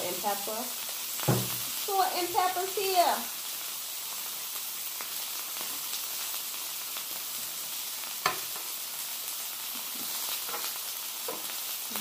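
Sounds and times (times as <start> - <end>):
food sizzling on a griddle: 0.0 - 12.0
sharp knock: 1.3 - 1.6.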